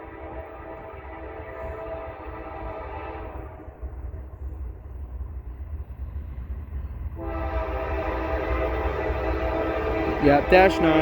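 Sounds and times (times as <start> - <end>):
locomotive air horn: 0.0 - 3.7, 7.2 - 11.0
freight train rumbling: 0.0 - 11.0.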